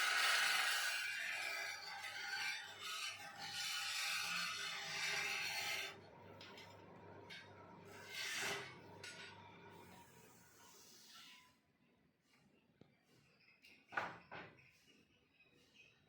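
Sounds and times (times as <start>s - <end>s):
lathe tool scraping wood: 0.0s - 6.0s.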